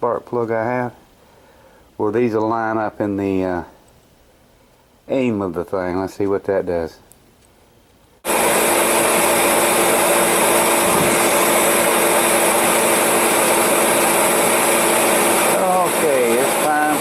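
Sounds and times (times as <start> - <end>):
heater motor and fan whirring: 8.2 - 17.0.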